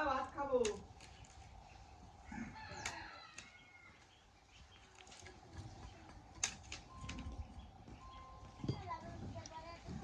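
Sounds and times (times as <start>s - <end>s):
rooster crowing: 2.2s - 4.1s.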